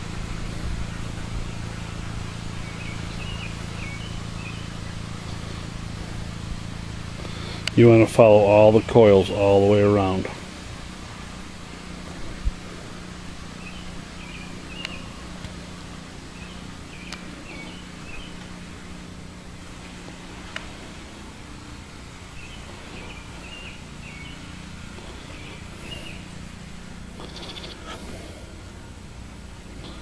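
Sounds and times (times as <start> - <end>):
steady low hum: 0.0 - 30.0
small bird chirping: 1.7 - 5.7, 13.5 - 19.0, 22.2 - 27.9.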